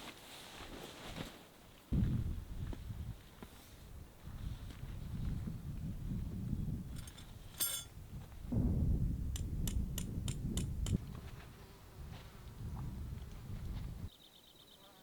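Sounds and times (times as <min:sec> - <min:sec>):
low wind rumble: 0:01.9 - 0:14.1
light ringing clink: 0:06.9 - 0:07.9.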